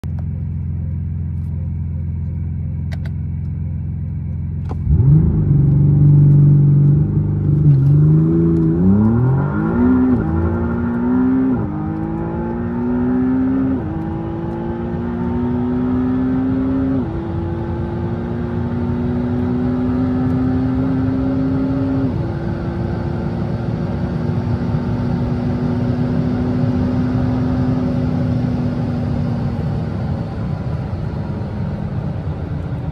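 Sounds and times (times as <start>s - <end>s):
car engine accelerating through gears: 0.1s - 32.9s.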